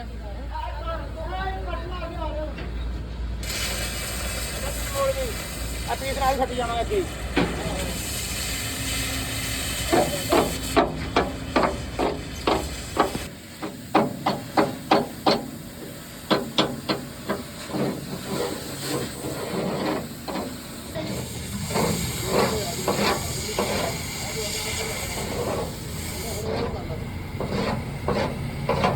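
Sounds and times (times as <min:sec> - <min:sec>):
low machine rumble: 0:20.7 - 0:28.9.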